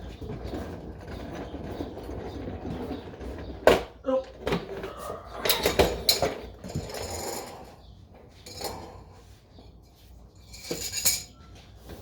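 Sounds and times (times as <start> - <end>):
metal hand tools clanking: 10.4 - 11.4.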